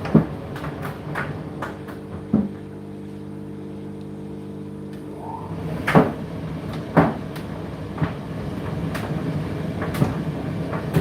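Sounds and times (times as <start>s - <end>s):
dryer drum knocking: 0.0s - 2.6s, 5.7s - 11.0s
tumble dryer running: 0.0s - 11.0s.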